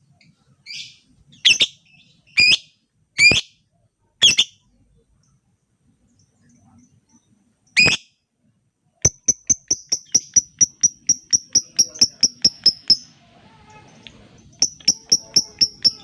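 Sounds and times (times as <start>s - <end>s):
bird ticking chirps: 9.0s - 13.1s, 14.4s - 16.0s
bird shrill call: 14.6s - 16.0s.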